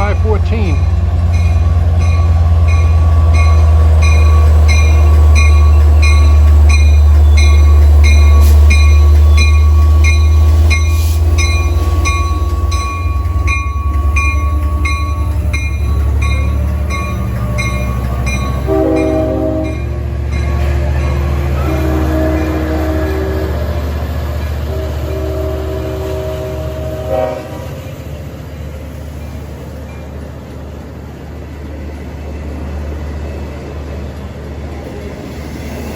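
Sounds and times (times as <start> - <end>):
diesel locomotive engine drone: 0.0 - 35.9
train horn chord: 18.6 - 19.9, 21.6 - 23.8, 24.6 - 27.8.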